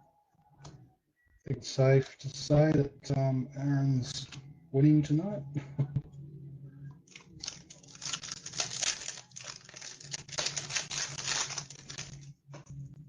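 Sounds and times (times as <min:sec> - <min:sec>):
foil wrapper tearing and crinkling: 0:07.1 - 0:12.3.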